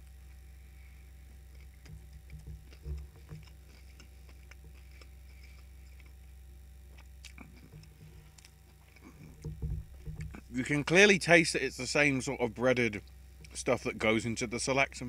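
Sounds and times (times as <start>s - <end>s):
steady low hum: 0.0s - 15.0s
person chewing crunchy food: 1.3s - 10.5s.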